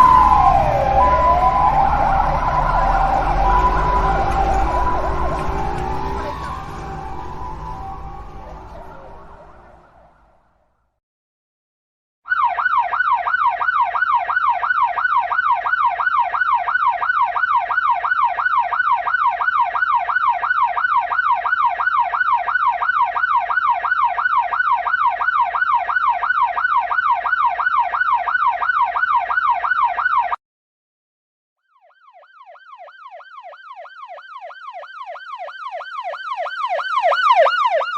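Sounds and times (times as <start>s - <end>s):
ambulance siren yelping: 0.0s - 10.4s, 12.3s - 30.4s, 31.8s - 37.9s.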